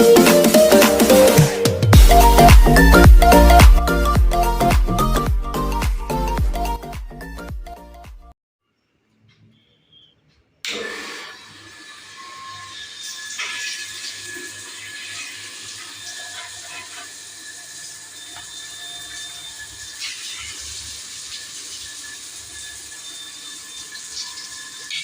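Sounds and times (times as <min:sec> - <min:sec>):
water running from a tap: 0:10.7 - 0:25.0.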